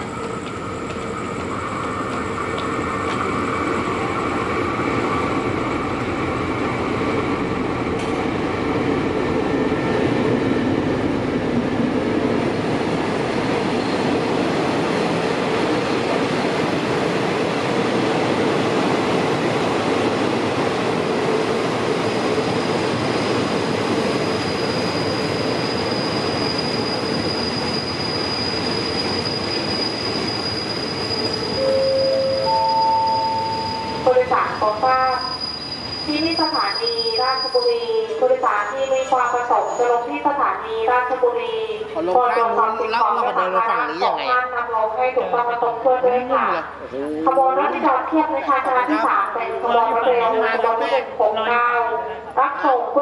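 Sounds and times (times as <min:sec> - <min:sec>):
train rumbling clatter: 0:00.0 - 0:06.5, 0:07.1 - 0:25.5
wheels and brakes squealing: 0:13.8 - 0:14.0, 0:24.1 - 0:40.1.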